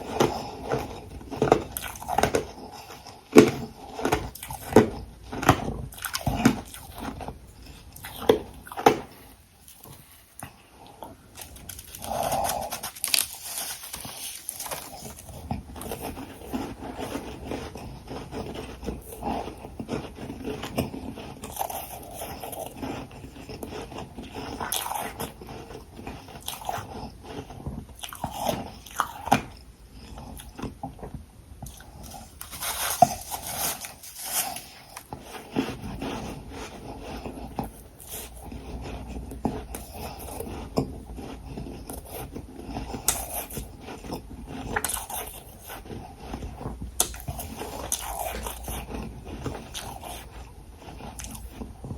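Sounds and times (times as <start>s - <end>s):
person crunching ice: 11.4s - 29.4s, 32.0s - 51.7s.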